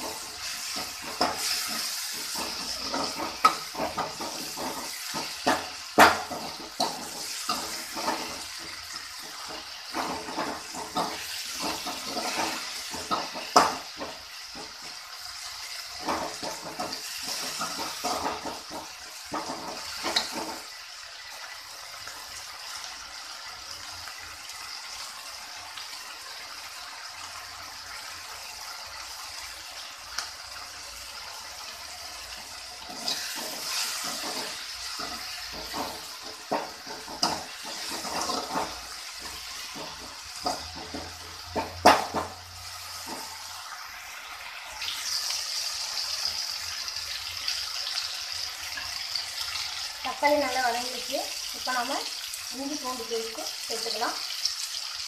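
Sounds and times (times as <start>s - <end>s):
metal spatula scraping pan: 0.0s - 15.0s, 15.6s - 20.8s, 32.8s - 43.5s
vegetables sizzling in oil: 0.0s - 55.0s.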